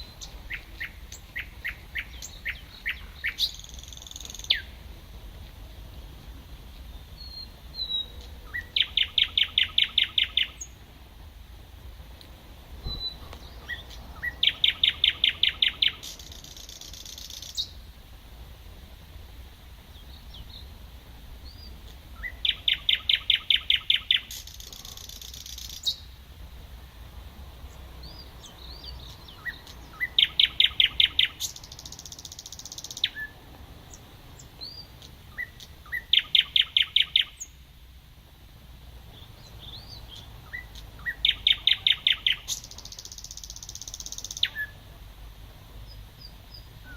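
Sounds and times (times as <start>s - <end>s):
nightingale singing: 0.0s - 4.9s, 6.8s - 10.9s, 12.8s - 18.0s, 19.8s - 20.8s, 21.4s - 26.2s, 27.6s - 37.7s, 39.1s - 45.0s, 45.7s - 46.9s.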